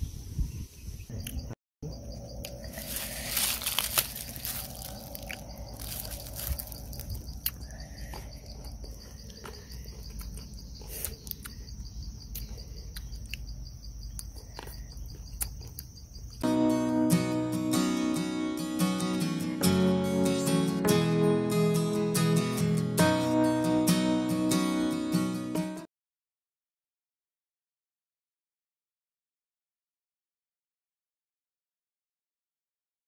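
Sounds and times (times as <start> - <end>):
pulsing insect trill: 1.4 - 16.5
crunching and chewing grapes: 2.3 - 16.4
acoustic guitar music: 16.4 - 25.9.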